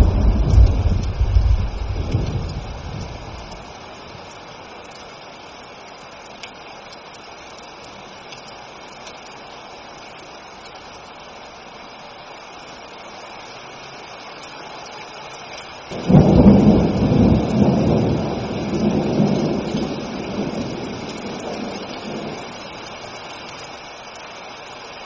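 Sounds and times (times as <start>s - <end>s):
low thunder rumble: 0.0s - 4.1s, 15.9s - 22.9s
steady rain: 0.0s - 25.0s.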